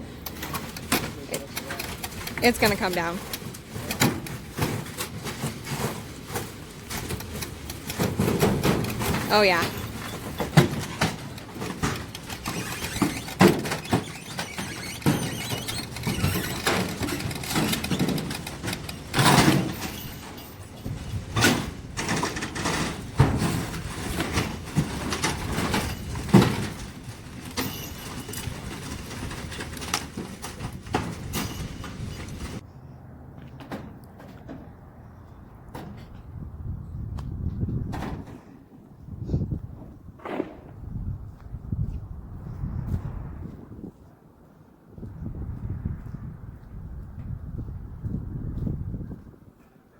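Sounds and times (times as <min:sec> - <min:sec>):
building crashing and creaking: 0:00.2 - 0:32.6
tractor engine running: 0:06.6 - 0:32.6.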